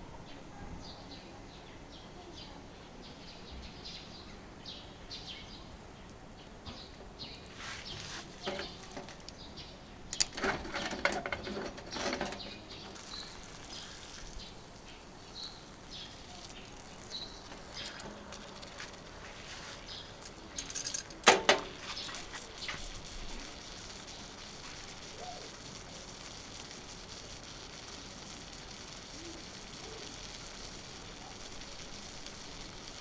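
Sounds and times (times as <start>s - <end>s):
rustling and clattering: 7.5s - 9.5s, 10.2s - 25.0s
faint bird chirps: 11.9s - 18.8s, 23.3s - 25.6s.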